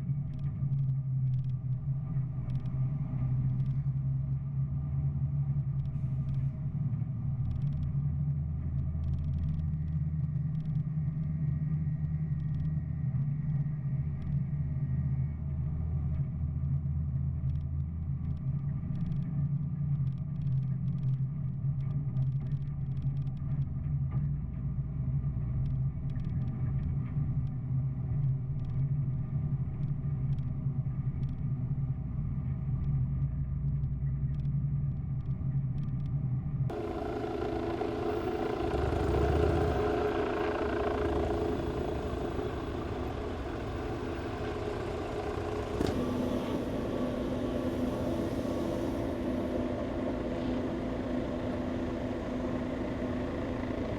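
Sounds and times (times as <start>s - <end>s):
higher steady drone: 36.7s - 53.9s
machinery running steadily: 36.7s - 53.9s.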